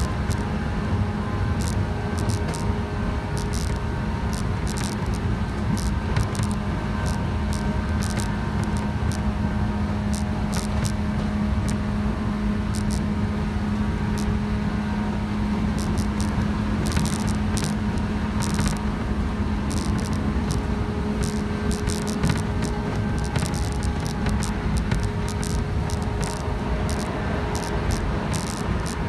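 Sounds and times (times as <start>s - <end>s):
sharp clicks and rattles: 0.0s - 0.5s, 1.6s - 9.2s, 10.1s - 11.8s, 12.7s - 13.1s, 14.1s - 14.3s, 15.7s - 19.0s, 19.6s - 29.0s
electric train droning: 0.0s - 29.0s.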